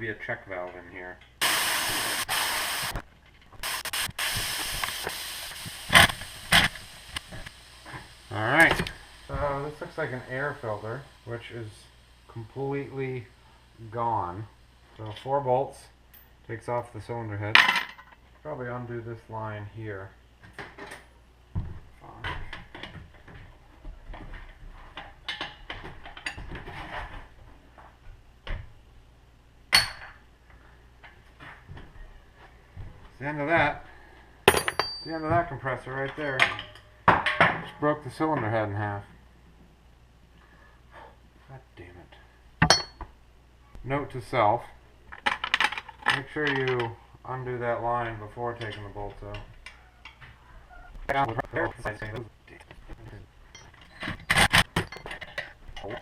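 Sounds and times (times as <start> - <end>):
compressed air hissing: 1.4 - 3.0, 3.6 - 12.4
hand tools clinking on metal: 34.5 - 35.3.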